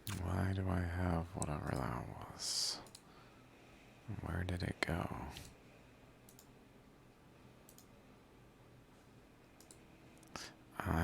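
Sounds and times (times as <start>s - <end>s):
low room hum: 0.0s - 11.0s
computer mouse clicks: 2.8s - 3.1s, 6.2s - 6.6s, 7.6s - 7.9s, 9.6s - 10.4s.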